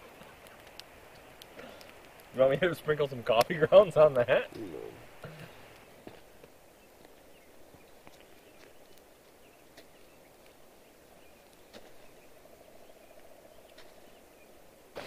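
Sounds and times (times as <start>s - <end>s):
small scattered clicks: 0.2s - 2.4s.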